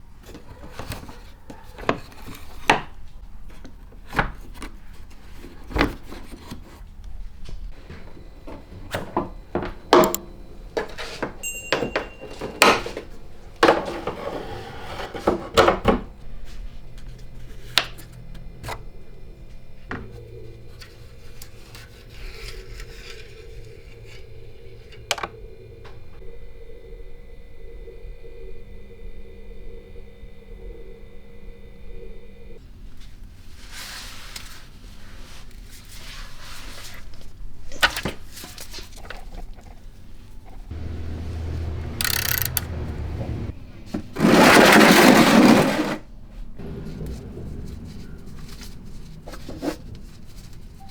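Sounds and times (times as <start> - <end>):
steady low hum: 23.4 - 32.6, 40.7 - 43.5.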